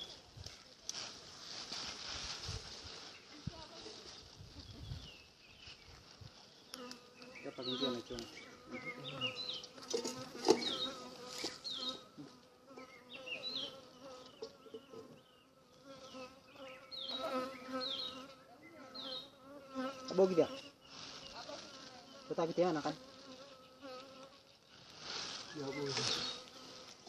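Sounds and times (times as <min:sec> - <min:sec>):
honeybees buzzing around a hive: 0:06.5 - 0:27.0.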